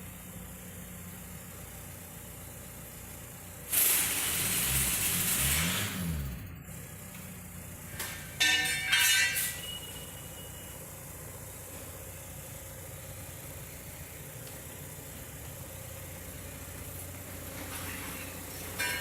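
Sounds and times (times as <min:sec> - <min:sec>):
diesel engine idling and revving: 0:00.0 - 0:19.0
loud hiss: 0:03.6 - 0:06.1
hissing bursts with whistling: 0:03.7 - 0:06.0.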